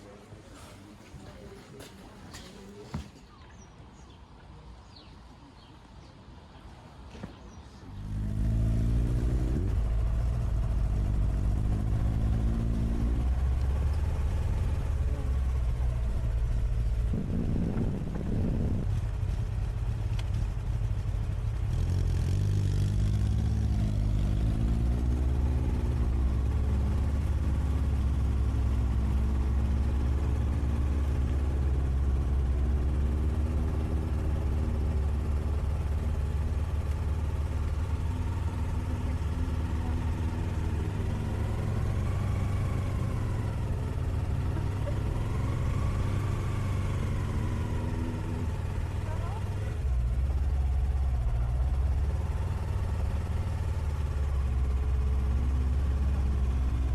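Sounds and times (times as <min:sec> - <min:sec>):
motorcycle engine revving: 0:07.8 - 0:56.9.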